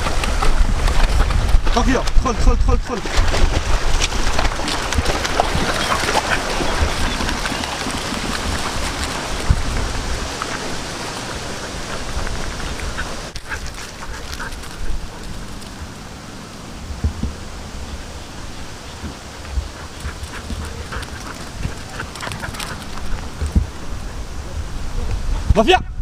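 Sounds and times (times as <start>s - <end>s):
wind rumbling on microphone: 0.0s - 26.0s
dogs splashing in water: 3.0s - 16.0s, 18.8s - 23.7s.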